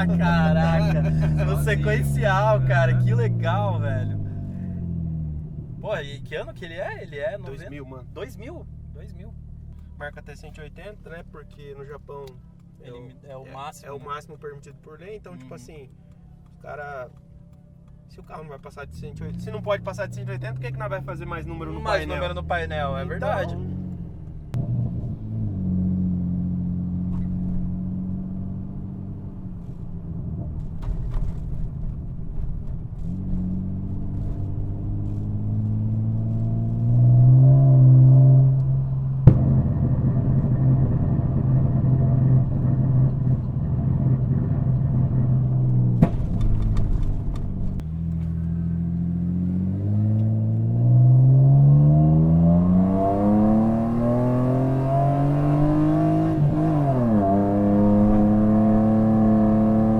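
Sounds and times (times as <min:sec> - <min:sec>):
car engine revving: 0:00.0 - 0:59.9
sharp exhaust crack: 0:38.4 - 0:47.8.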